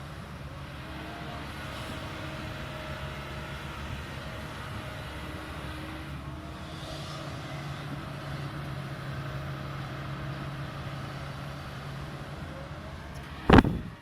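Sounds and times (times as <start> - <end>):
excavator diesel engine running: 0.0 - 14.0
loud thump: 13.5 - 13.9.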